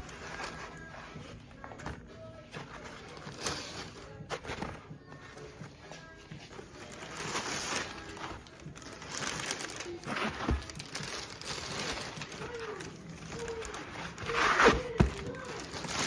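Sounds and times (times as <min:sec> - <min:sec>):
plastic packaging rustling: 0:00.0 - 0:05.2, 0:06.0 - 0:16.0.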